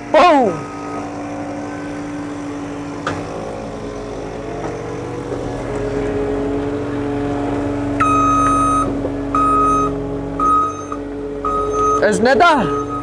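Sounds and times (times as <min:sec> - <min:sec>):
reversing alarm beeping: 0:00.0 - 0:03.5, 0:07.9 - 0:13.0
diesel engine running: 0:00.0 - 0:13.0.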